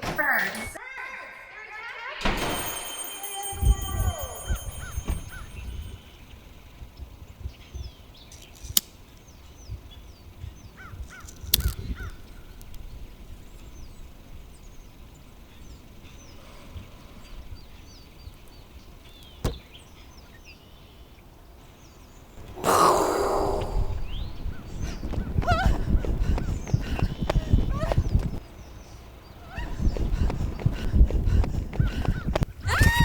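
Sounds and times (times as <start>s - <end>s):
birds calling: 2.5s - 33.0s
sharp clicks: 11.2s - 12.8s.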